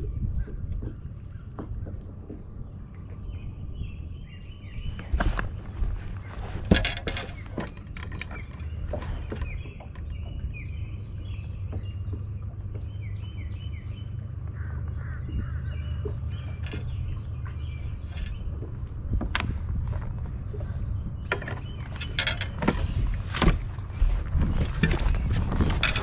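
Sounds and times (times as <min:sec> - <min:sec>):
low steady rumble: 0:00.0 - 0:26.0
small birds chirping: 0:00.8 - 0:19.2, 0:20.4 - 0:26.0
plastic clacks and rattles: 0:05.0 - 0:10.3, 0:21.3 - 0:26.0.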